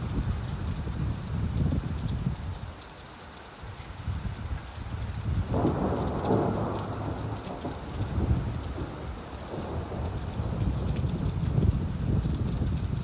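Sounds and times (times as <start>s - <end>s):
steady rainfall: 0.0s - 13.0s
thunder rumbling: 5.4s - 13.0s.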